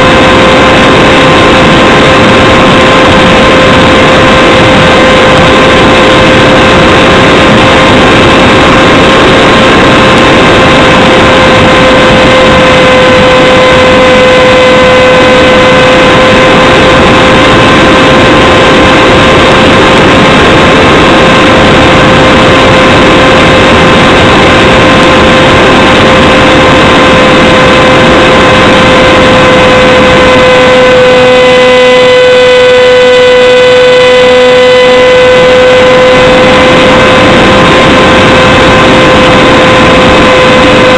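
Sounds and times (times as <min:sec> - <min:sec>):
electric motor and propeller whining: 0:00.0 - 0:40.9
wind rush on microphone: 0:00.0 - 0:40.9.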